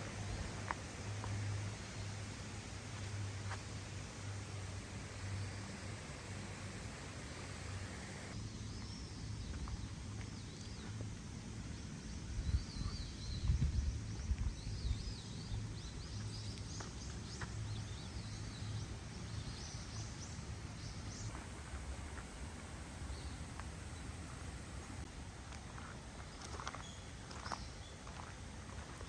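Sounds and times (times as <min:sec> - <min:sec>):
small birds warbling: 0:17.4 - 0:25.0.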